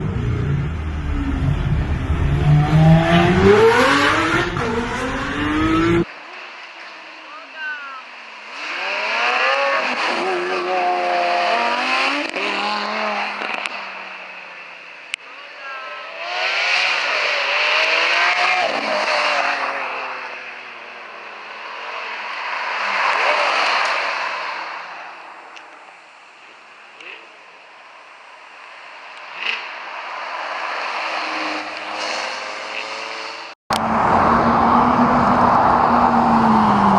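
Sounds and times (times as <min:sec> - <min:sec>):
supercar engine accelerating hard: 0:00.0 - 0:06.1, 0:31.3 - 0:36.9
car engine revving: 0:00.0 - 0:06.6, 0:08.1 - 0:14.4, 0:16.0 - 0:25.1, 0:29.1 - 0:36.9.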